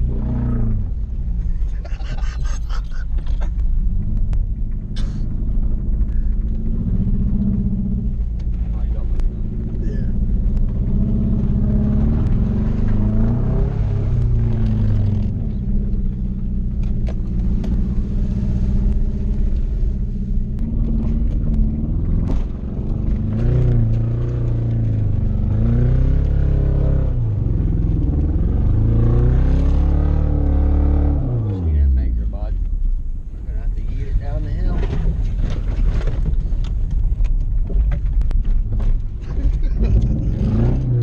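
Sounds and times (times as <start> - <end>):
car engine revving: 0.0 - 41.0
car knocks and clunks: 20.5 - 25.1, 33.7 - 40.9.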